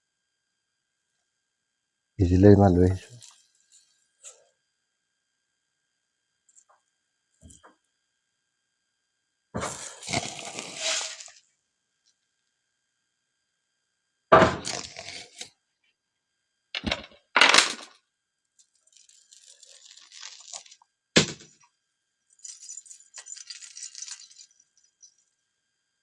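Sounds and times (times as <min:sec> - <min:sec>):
scraping: 0:09.6 - 0:11.3
light crinkling: 0:18.6 - 0:20.8.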